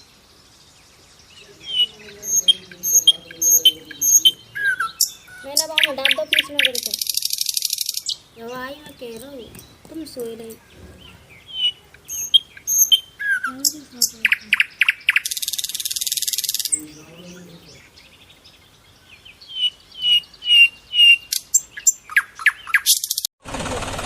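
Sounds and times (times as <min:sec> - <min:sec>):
small birds chirping: 0:00.0 - 0:23.3
engine-like noise: 0:23.4 - 0:24.0.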